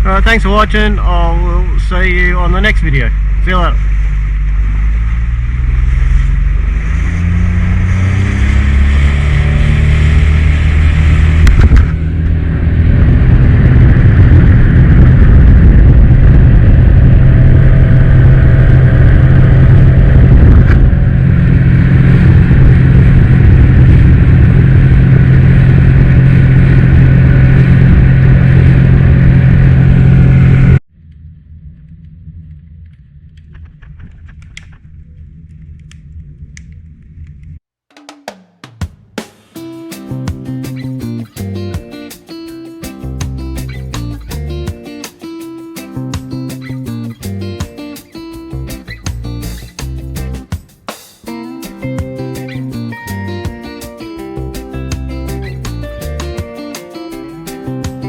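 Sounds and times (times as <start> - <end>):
rush of noise: 0.0 - 37.5, 39.6 - 58.0
outboard motor running: 1.0 - 30.8.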